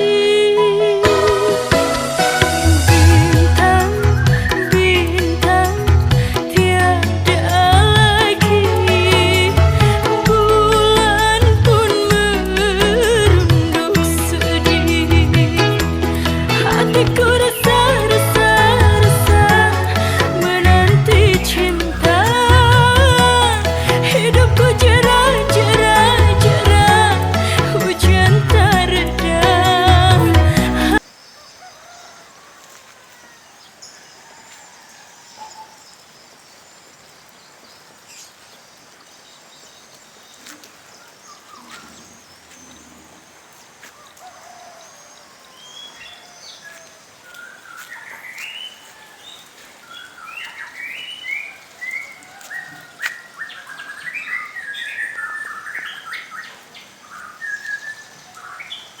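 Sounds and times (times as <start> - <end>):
rain hissing: 0.0 - 31.3
small birds chirping: 31.0 - 59.0.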